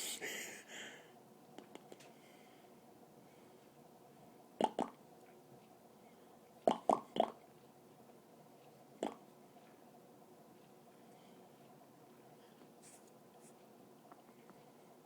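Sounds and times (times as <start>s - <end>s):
wet mouth pops: 4.6s - 5.0s, 6.7s - 7.4s.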